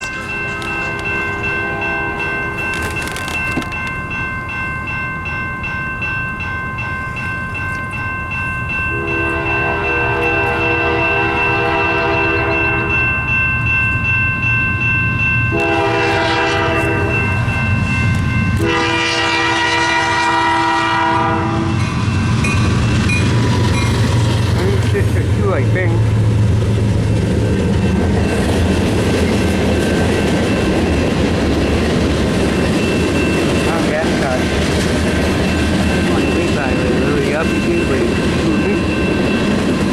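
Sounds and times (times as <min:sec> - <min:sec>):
high ringing bell: 0:00.0 - 0:20.6, 0:27.8 - 0:39.9
train wheels rumbling on rails: 0:00.0 - 0:39.9
locomotive horn: 0:00.2 - 0:02.6, 0:08.9 - 0:13.1, 0:15.5 - 0:17.4, 0:18.6 - 0:21.8.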